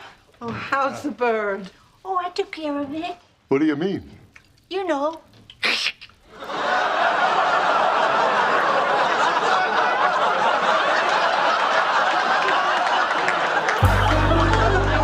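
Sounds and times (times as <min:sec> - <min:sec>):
studio audience laughing: 0:06.3 - 0:15.0.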